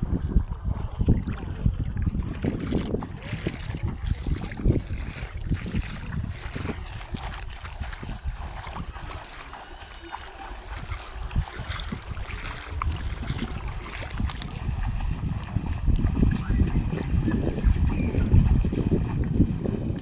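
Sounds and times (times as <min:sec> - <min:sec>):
water noise: 0:00.0 - 0:20.0
water splashes: 0:00.0 - 0:20.0
wind buffeting microphone: 0:00.0 - 0:20.0.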